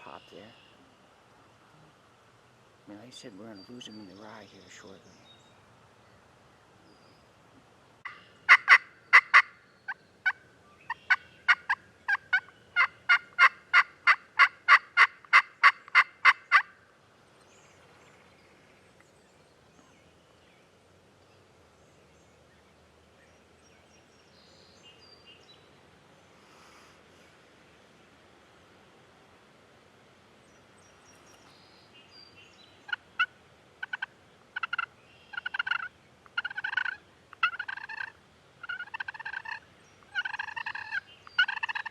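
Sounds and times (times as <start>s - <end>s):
turkey yelping: 8.0s - 9.5s, 10.2s - 16.7s, 32.9s - 41.9s.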